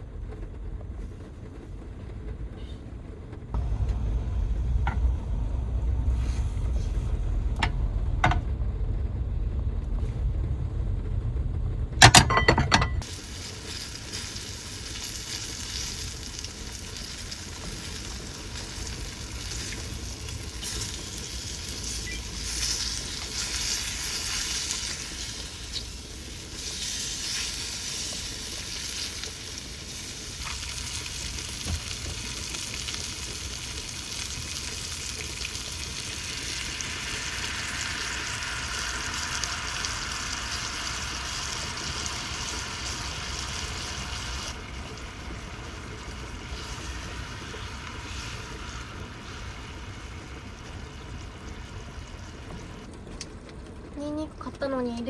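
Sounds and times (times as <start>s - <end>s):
meat sizzling in a pan: 13.0s - 52.2s.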